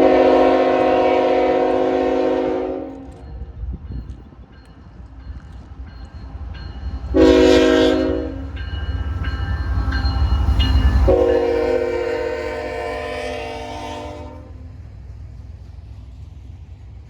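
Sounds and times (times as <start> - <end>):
locomotive air horn blasts: 0.0 - 3.4, 7.1 - 8.5, 11.1 - 14.6
train engine rumble: 0.0 - 17.0.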